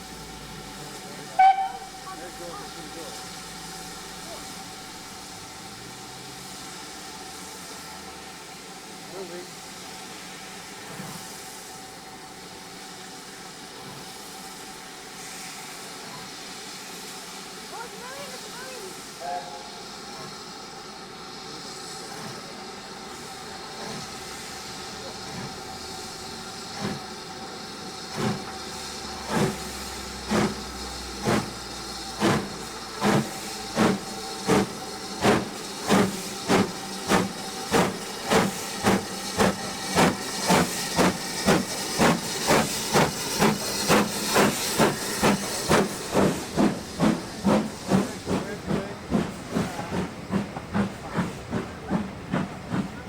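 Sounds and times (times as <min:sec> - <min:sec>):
steam hissing: 0:00.0 - 0:53.0
locomotive exhaust beats: 0:21.6 - 0:53.0.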